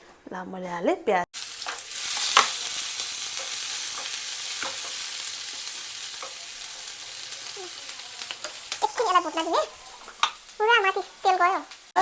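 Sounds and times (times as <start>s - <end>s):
vegetables sizzling in oil: 1.4s - 12.0s.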